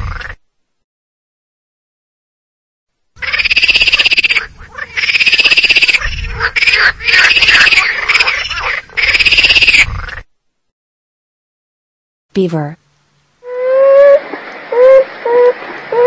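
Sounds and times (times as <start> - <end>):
squirrel chattering: 3.2 - 4.4, 5.0 - 6.0, 6.6 - 8.4, 9.0 - 9.8.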